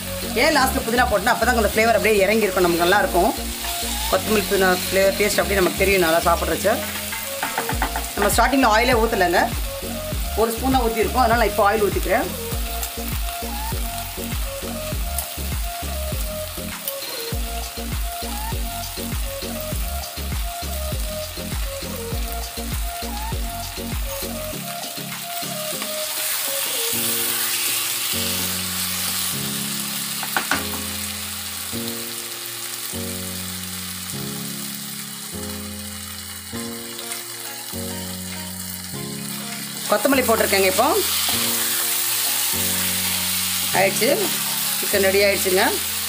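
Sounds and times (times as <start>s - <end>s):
chicken sizzling in a pan: 0.0s - 46.0s
music with steady beat: 2.8s - 27.3s
spatula stirring: 6.8s - 8.4s.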